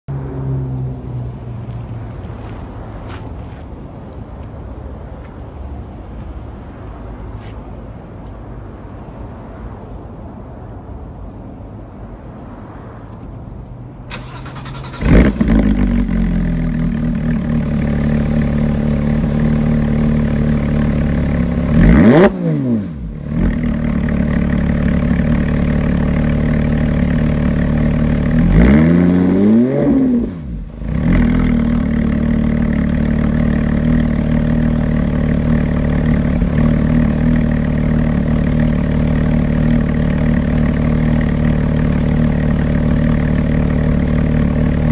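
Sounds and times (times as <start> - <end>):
car engine starting and idling: 13.1 - 44.9
engine revs blipping: 14.1 - 44.9.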